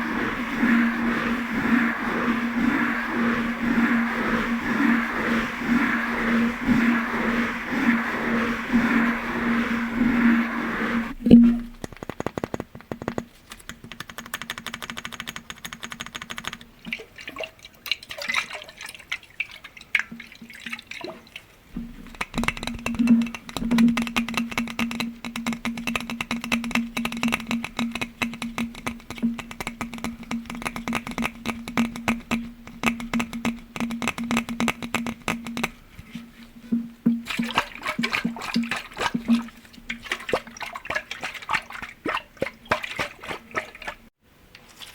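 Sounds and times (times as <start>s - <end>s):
steady low tone: 0.0s - 11.8s
rapid tapping on glass: 21.8s - 35.9s.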